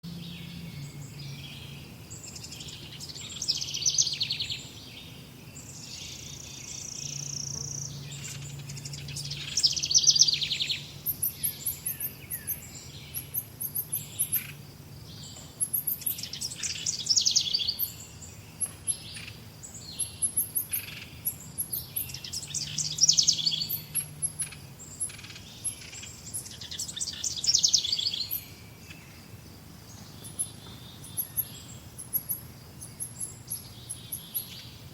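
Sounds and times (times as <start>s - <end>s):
bird singing trilled song: 0.1s - 34.9s
birds chipping and twittering: 0.1s - 34.9s.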